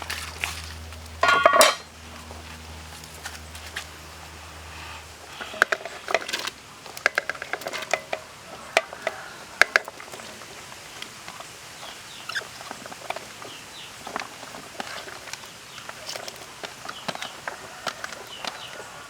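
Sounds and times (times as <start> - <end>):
kitchenware clinking and knocking: 1.2 - 1.9.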